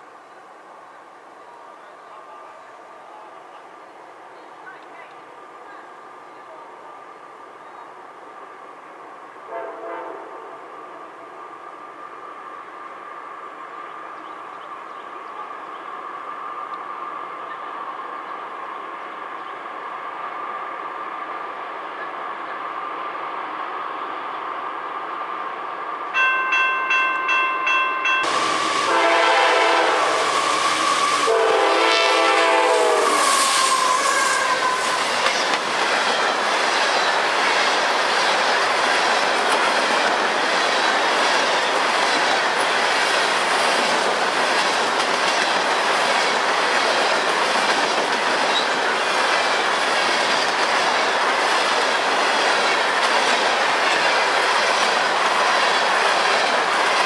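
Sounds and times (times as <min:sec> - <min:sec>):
freight train rushing past: 0:08.2 - 0:57.0
train horn blasts: 0:09.5 - 0:11.4, 0:27.3 - 0:35.1
crossing bell ringing: 0:26.1 - 0:28.6.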